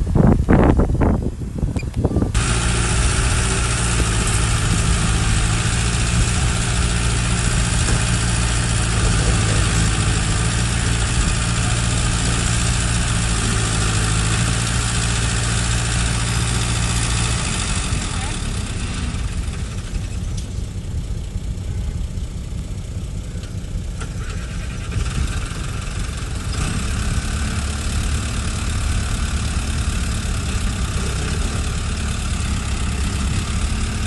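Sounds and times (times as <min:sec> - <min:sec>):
wind buffeting microphone: 0:00.0 - 0:13.7
diesel engine running: 0:00.0 - 0:34.0.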